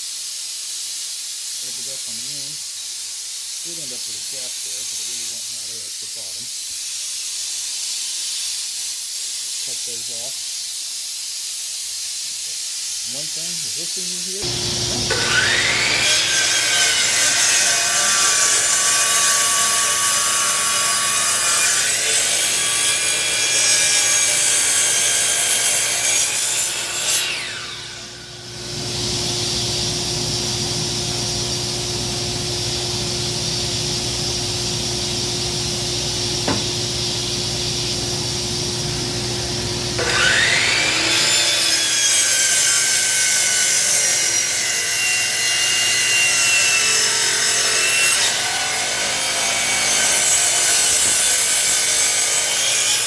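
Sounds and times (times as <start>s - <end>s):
power tool rasping on wood: 13.1s - 28.6s, 38.9s - 53.0s.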